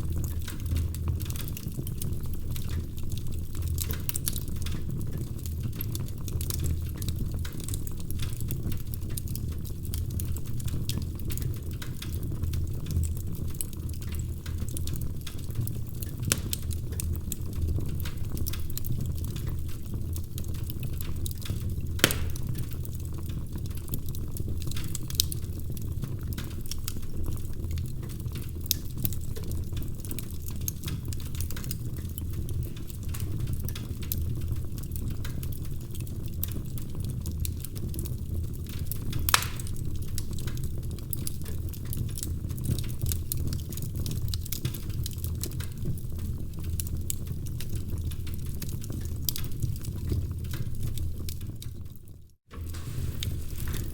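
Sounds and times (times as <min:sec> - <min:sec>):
wood fire low rumble: 0:00.0 - 0:53.9
fire sharp pops: 0:00.2 - 0:29.6, 0:38.7 - 0:41.3, 0:52.5 - 0:53.9.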